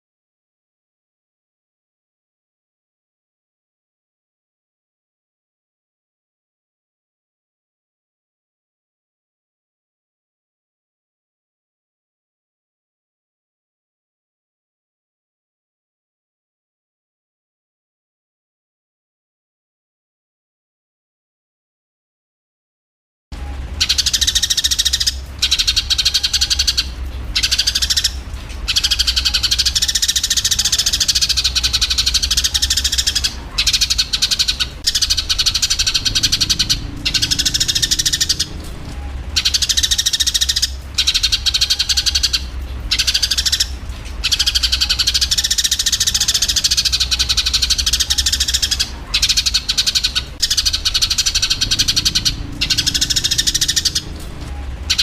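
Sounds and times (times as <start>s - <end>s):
sparrows chattering: 23.8s - 54.2s
low hum: 30.8s - 49.5s, 50.4s - 55.0s.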